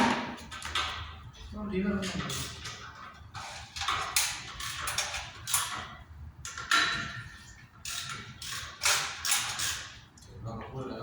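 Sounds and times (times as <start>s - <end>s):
metal tools clanking and scraping: 1.9s - 10.0s.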